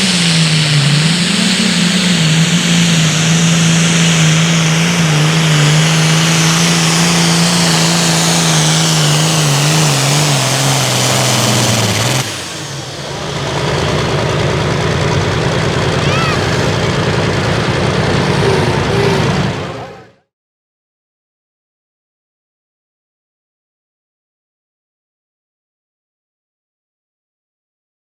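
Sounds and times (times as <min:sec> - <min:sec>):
tractor diesel engine under load: 0:00.0 - 0:20.3.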